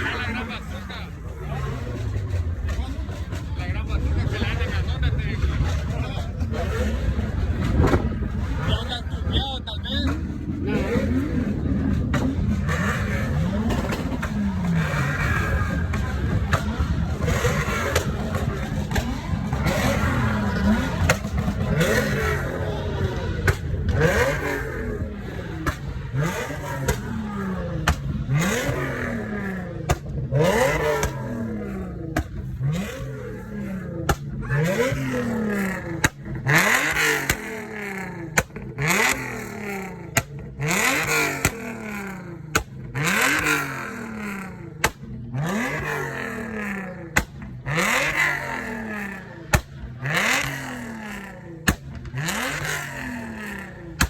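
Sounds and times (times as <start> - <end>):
engine revving: 0.0 - 54.0
exhaust cracks: 0.0 - 54.0.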